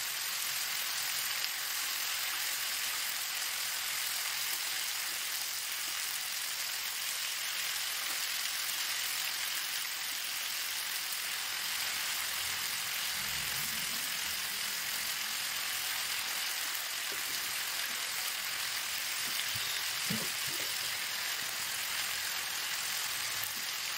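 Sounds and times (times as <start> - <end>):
vegetables sizzling in hot oil: 0.0 - 23.9.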